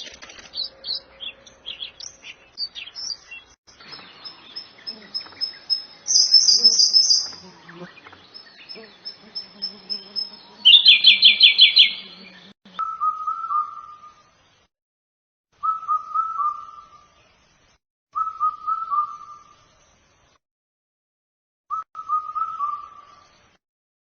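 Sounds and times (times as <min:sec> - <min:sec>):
songbirds singing: 0:00.0 - 0:14.6.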